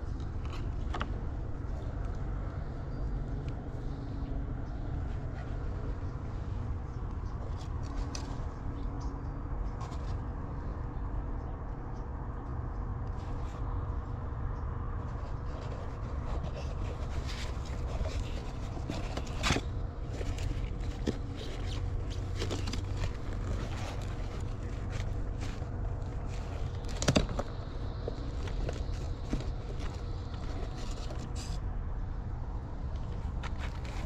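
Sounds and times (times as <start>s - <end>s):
steady low rumble: 0.0s - 34.0s
items clicking and scraping: 6.8s - 10.3s, 15.0s - 31.6s, 33.0s - 34.0s.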